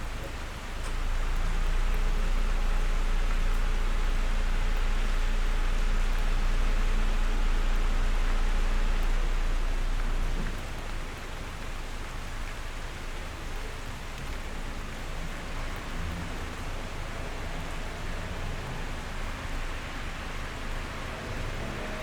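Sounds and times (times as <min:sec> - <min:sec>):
rain on a window: 0:00.0 - 0:22.0.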